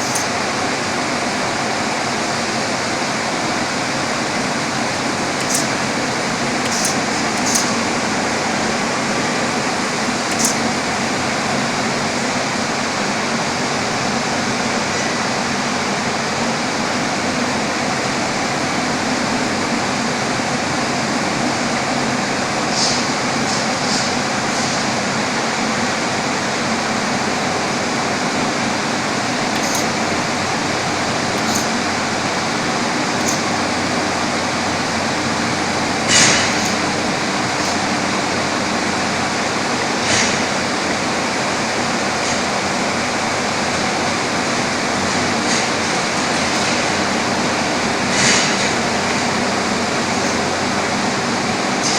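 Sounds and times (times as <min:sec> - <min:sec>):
short high clicks: 0:00.0 - 0:00.5, 0:04.7 - 0:11.1, 0:29.2 - 0:38.1
loud machine running: 0:00.0 - 0:51.9.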